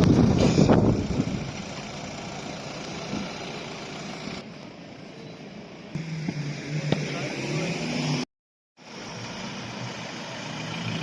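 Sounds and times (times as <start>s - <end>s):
car engines idling: 0.0s - 7.7s.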